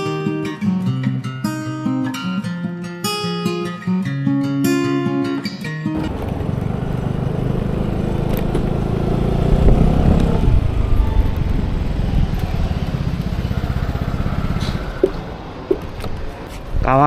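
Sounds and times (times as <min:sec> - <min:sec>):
scooter engine revving: 0:06.0 - 0:15.9.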